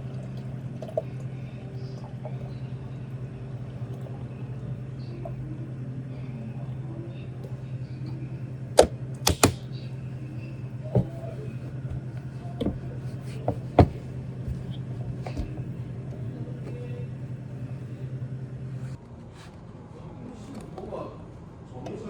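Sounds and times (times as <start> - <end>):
low machine hum: 0.0 - 22.0
hard objects knocking: 8.8 - 9.7, 11.8 - 15.8.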